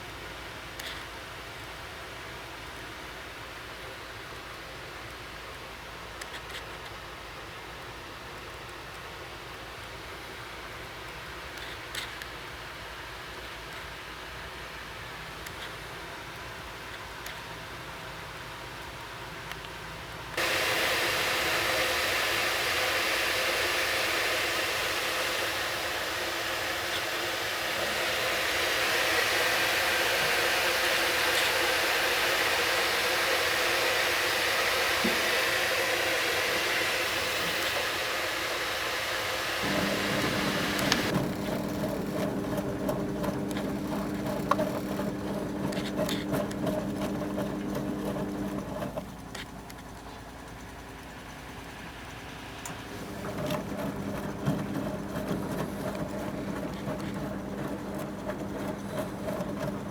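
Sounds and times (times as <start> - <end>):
washing machine motor hum: 20.4 - 59.9
water filling washing machine drum: 37.9 - 49.3, 52.7 - 59.9
drum tumbling clicks and knocks: 53.0 - 59.9.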